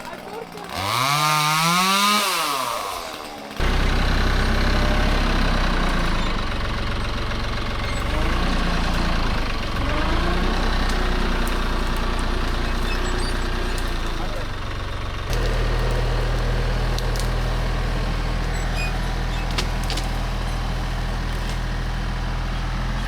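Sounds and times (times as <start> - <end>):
diesel tractor engine idling: 0.0 - 1.9, 2.6 - 23.0.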